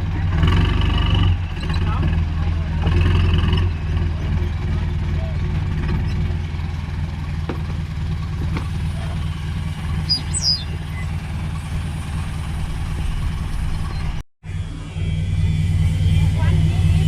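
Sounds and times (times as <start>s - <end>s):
vehicle engine idling: 0.0s - 17.0s
high falling chirp: 10.0s - 11.4s.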